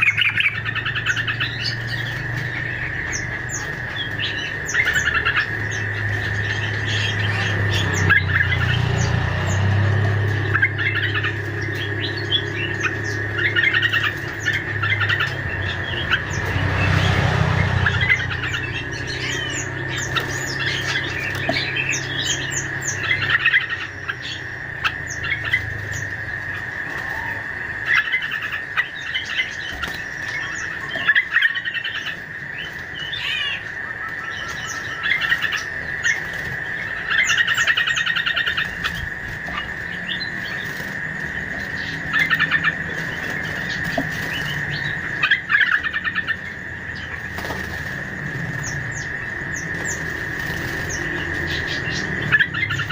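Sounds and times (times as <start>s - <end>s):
high-pitched drone: 0.0s - 52.9s
rattling bird trills: 0.0s - 52.9s
small birds chirping: 0.0s - 52.9s.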